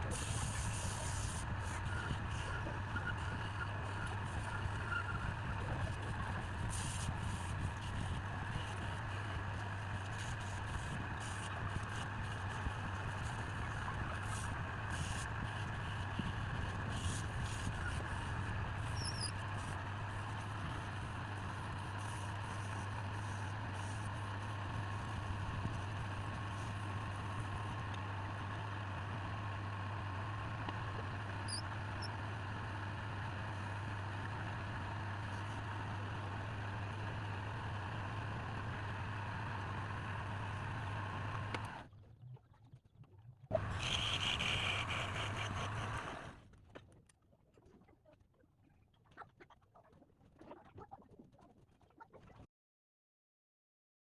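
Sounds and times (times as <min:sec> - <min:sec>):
motorised machine whirring: 0:43.5 - 0:46.4.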